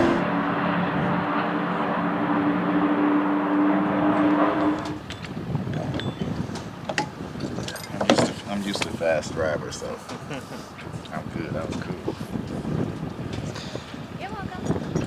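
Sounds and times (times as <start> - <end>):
race car engine running: 0.0 - 5.1.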